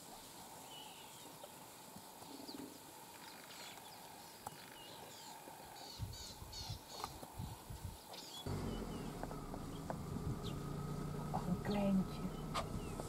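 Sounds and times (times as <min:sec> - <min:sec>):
small birds chirping and whistling: 0:03.3 - 0:10.8, 0:11.6 - 0:13.0
low bumps: 0:08.5 - 0:13.0.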